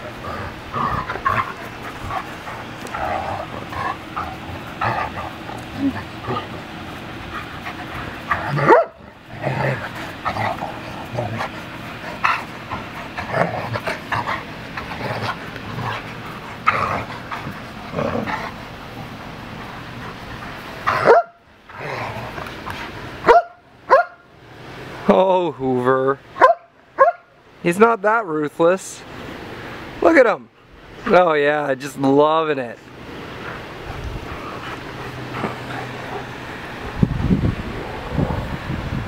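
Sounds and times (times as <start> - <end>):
dog playing noises: 0.0 - 24.0, 32.8 - 38.4
dogs barking: 0.7 - 18.6, 20.8 - 21.4, 23.2 - 24.2, 26.4 - 27.3.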